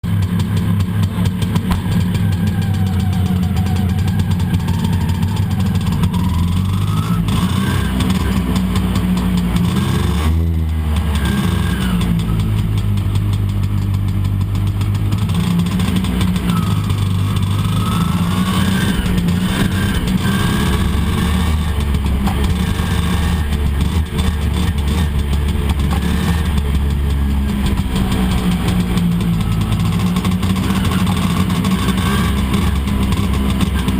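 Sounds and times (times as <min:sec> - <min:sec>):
scooter engine revving: 0:00.0 - 0:33.9.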